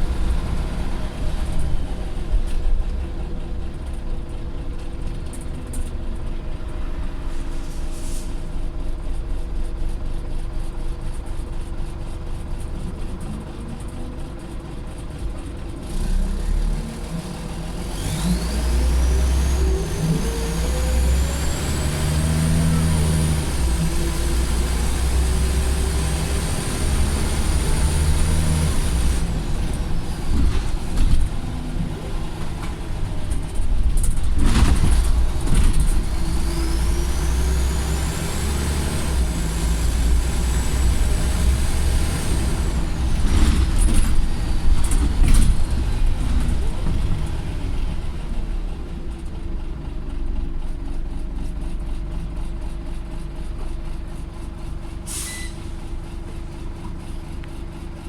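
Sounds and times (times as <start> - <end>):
bus diesel engine running: 0.0 - 58.0
high turbo whistle: 55.1 - 55.7.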